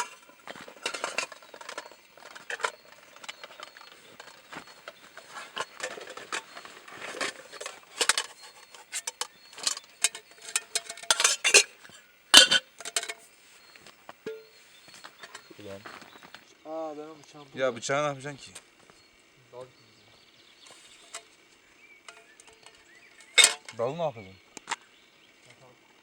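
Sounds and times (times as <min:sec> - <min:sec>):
metal items clinking: 0:00.0 - 0:16.3, 0:22.1 - 0:23.8.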